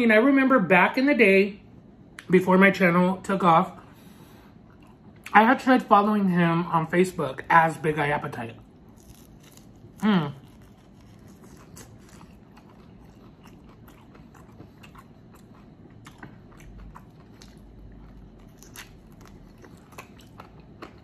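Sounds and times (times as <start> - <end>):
chewing on chicken wing: 8.9 - 21.0.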